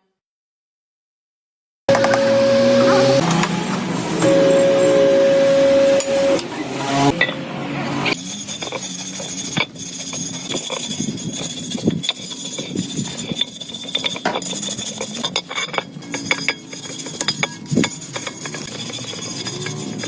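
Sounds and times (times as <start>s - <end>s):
metal tools clinking: 8.2s - 20.0s.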